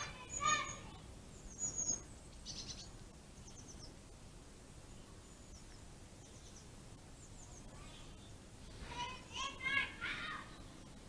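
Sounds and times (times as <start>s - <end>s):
small bird chirping: 0.0s - 4.1s, 4.9s - 8.4s
background hiss and rumble: 0.0s - 11.0s.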